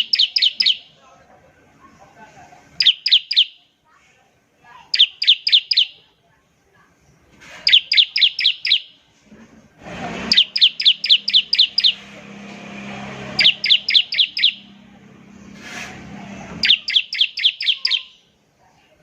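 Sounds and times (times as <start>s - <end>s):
bird singing rapid sliding notes: 0.0s - 0.9s, 2.8s - 3.6s, 4.9s - 6.0s, 7.6s - 8.9s, 10.2s - 14.8s, 16.6s - 18.2s.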